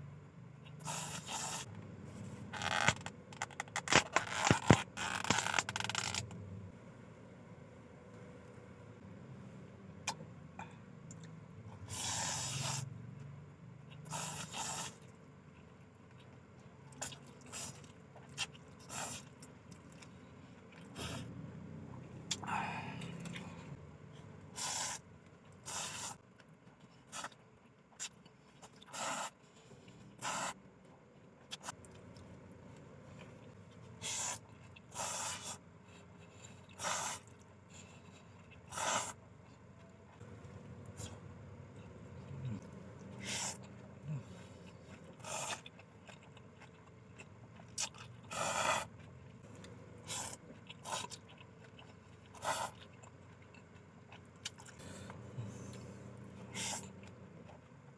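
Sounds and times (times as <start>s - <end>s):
slurping noodles: 0.8s - 1.7s, 11.9s - 12.9s, 14.0s - 15.0s, 24.6s - 25.0s, 25.6s - 26.2s, 28.9s - 29.4s, 30.2s - 30.6s, 34.0s - 35.6s, 36.7s - 37.3s, 38.6s - 39.2s, 42.3s - 45.7s, 47.8s - 48.9s, 50.0s - 51.2s, 54.5s - 57.0s.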